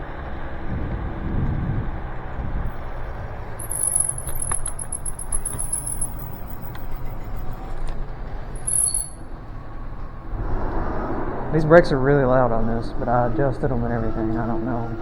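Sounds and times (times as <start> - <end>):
scooter ride rumble: 0.0 - 15.0
disc brakes squealing: 2.7 - 7.8, 8.4 - 9.4.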